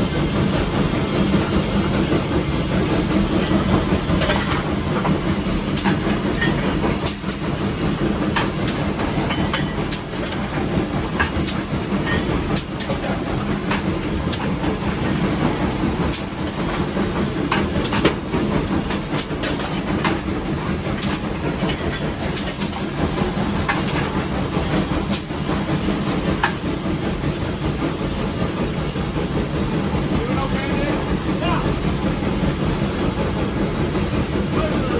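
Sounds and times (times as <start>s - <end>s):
steam locomotive rumble and hiss: 0.0s - 34.9s
metallic clanks and clicks: 4.2s - 7.5s, 8.3s - 10.5s, 11.2s - 16.9s.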